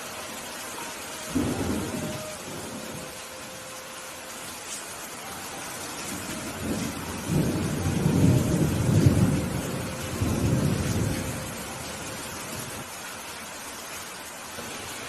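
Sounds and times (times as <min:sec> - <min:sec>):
steady rain hissing: 0:00.0 - 0:15.0
rolling thunder: 0:01.3 - 0:03.1, 0:06.2 - 0:12.9.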